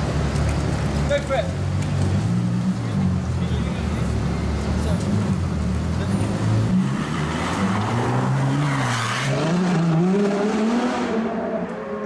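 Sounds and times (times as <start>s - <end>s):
sports car engine accelerating: 5.0s - 12.0s.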